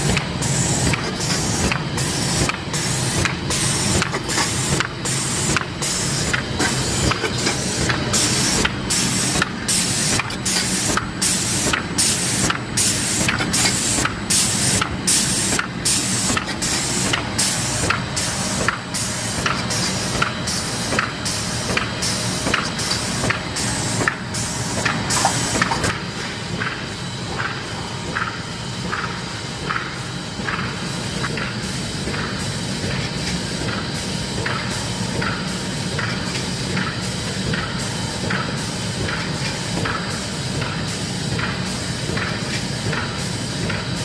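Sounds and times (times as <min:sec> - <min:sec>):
laminating machine hissing: 0:00.0 - 0:26.1.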